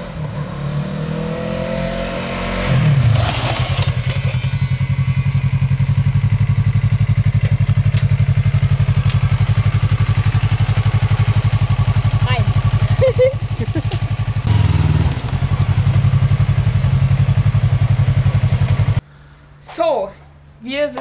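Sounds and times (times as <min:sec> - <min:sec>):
motorcycle engine idling: 0:03.8 - 0:19.0.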